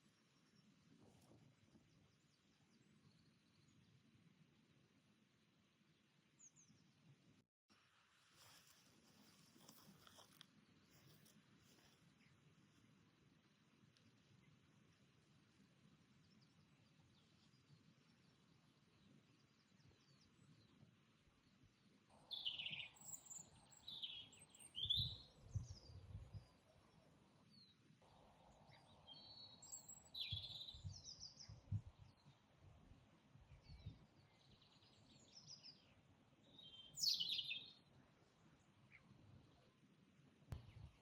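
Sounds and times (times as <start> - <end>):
birds singing: 22.2 - 26.5, 28.6 - 32.4, 33.6 - 37.9.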